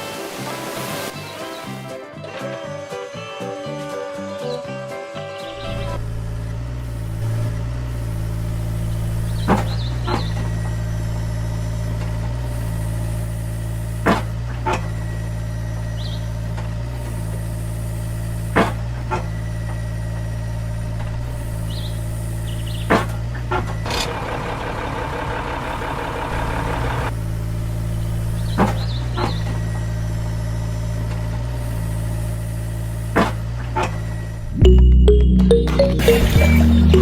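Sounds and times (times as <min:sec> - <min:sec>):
engine idling: 0:19.6 - 0:28.6.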